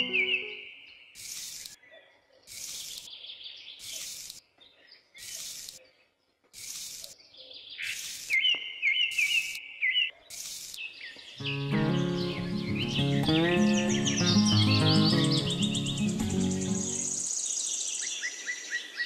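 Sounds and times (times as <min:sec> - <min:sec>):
birds chirping: 0:00.0 - 0:19.0
short bursts of hiss: 0:01.2 - 0:01.8, 0:02.5 - 0:03.1, 0:03.8 - 0:04.4, 0:05.2 - 0:05.8, 0:06.5 - 0:07.2, 0:07.8 - 0:08.4, 0:10.3 - 0:10.8.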